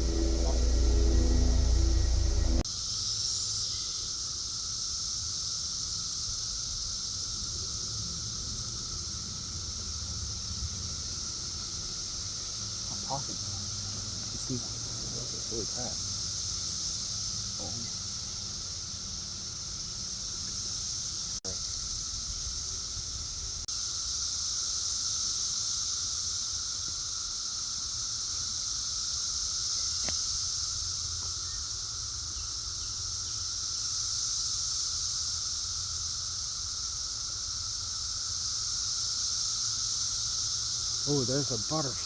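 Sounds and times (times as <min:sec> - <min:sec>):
low steady hum: 0:00.0 - 0:02.6
cicadas high-pitched drone: 0:00.0 - 0:42.0.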